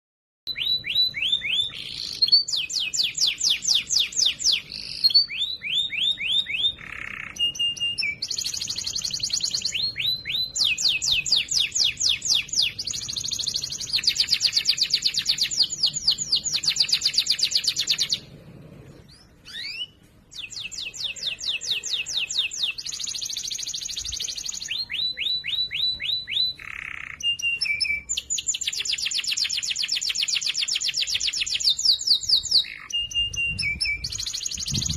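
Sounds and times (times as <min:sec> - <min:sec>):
canary singing trills: 0:00.5 - 0:34.9.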